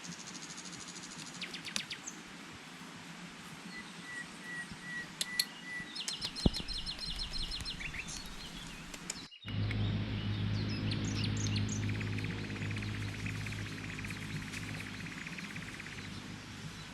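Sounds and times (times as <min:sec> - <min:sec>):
wild birds chirping: 0:03.7 - 0:16.9
bird trill: 0:04.5 - 0:16.9
steady low hum: 0:06.8 - 0:16.9.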